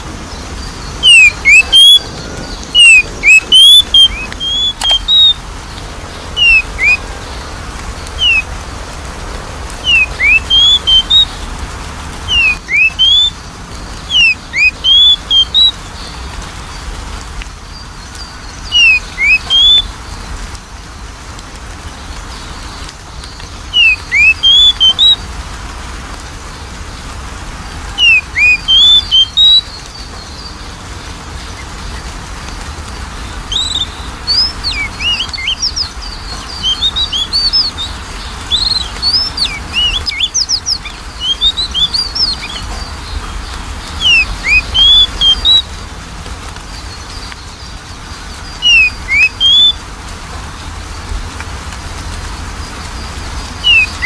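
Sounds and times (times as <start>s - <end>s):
bird singing whistles: 0.3s - 5.4s, 6.4s - 7.4s, 8.2s - 8.5s, 9.8s - 11.4s, 12.3s - 13.4s, 14.0s - 16.1s, 18.4s - 19.9s, 23.7s - 25.2s, 27.9s - 30.6s, 33.5s - 45.7s, 48.4s - 49.8s, 53.6s - 54.0s.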